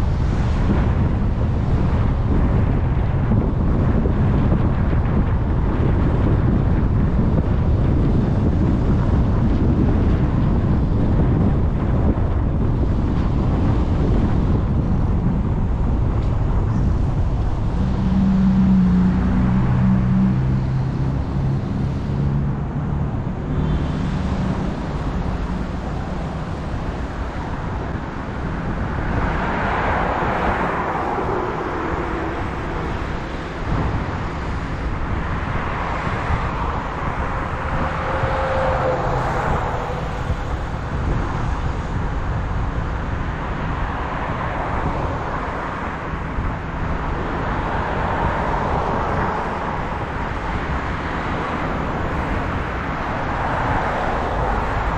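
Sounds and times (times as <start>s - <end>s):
car road and engine rumble: 0.0s - 54.9s
rushing tyre and traffic noise: 0.0s - 54.9s.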